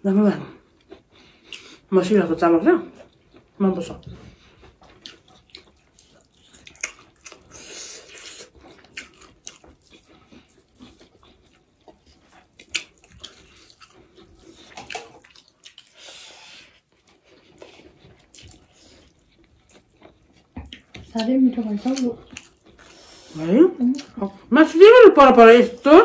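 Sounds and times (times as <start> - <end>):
wet chewing: 0.6 - 1.9, 2.9 - 24.5.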